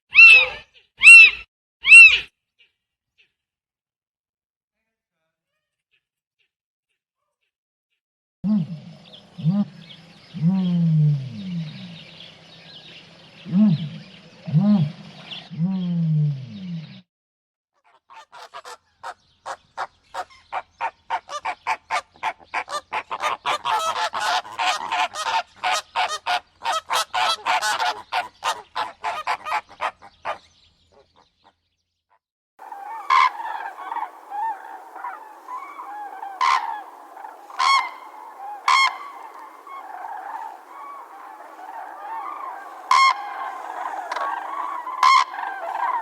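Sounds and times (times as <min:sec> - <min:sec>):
chatter of many birds: 0:08.9 - 0:15.9, 0:32.6 - 0:46.0
loud sharp bird calls: 0:32.6 - 0:46.0
short loud bird calls: 0:32.6 - 0:46.0.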